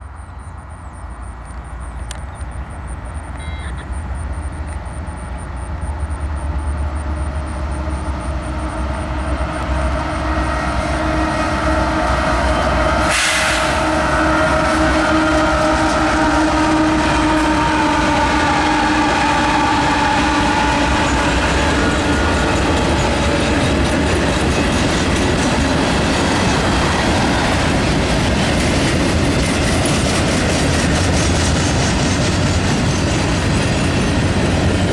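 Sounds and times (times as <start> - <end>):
train passing: 0.0 - 34.9
wheels clattering on rails: 0.7 - 34.9
locomotive horn: 3.2 - 5.8, 6.4 - 28.2.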